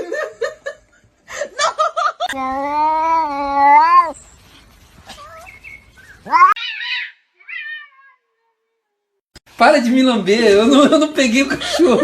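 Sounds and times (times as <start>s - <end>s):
cat meowing: 2.7s - 4.2s, 6.2s - 9.0s.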